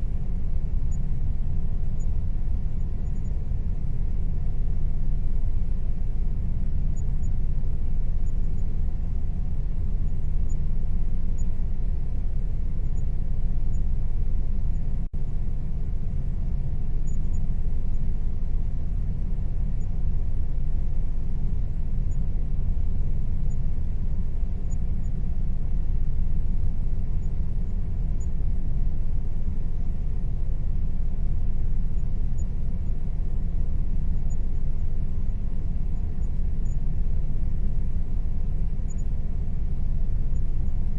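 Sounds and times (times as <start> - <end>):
air conditioner rumbling: 0.0 - 40.9
faint constant hum: 0.0 - 40.9.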